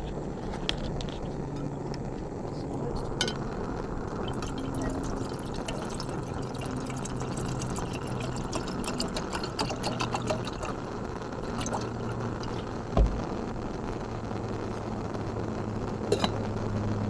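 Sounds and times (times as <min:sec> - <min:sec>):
low steady hum: 0:00.0 - 0:17.0
dull thump: 0:13.0 - 0:13.4.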